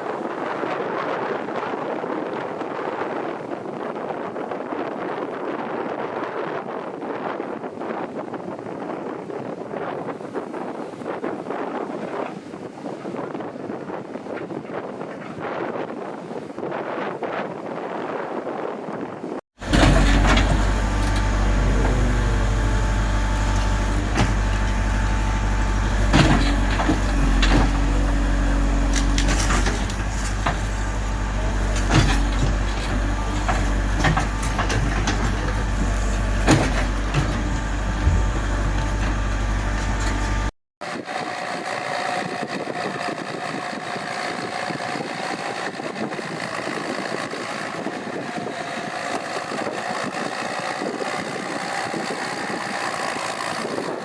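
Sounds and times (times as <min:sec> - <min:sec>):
knocks and clanks: 0:19.6 - 0:40.5
diesel engine deep hum: 0:19.6 - 0:40.6
thinner engine noise: 0:19.6 - 0:54.0.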